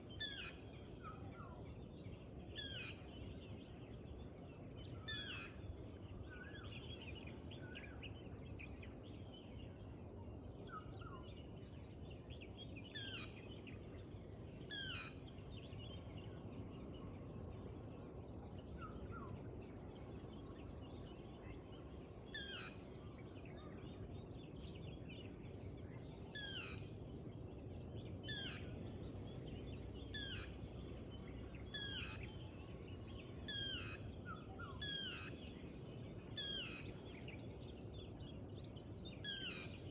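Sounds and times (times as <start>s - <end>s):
faint bird chirps: 0.0s - 4.3s, 4.9s - 9.5s, 12.3s - 13.8s, 14.7s - 16.1s, 22.3s - 24.0s, 24.6s - 27.0s, 28.0s - 39.9s.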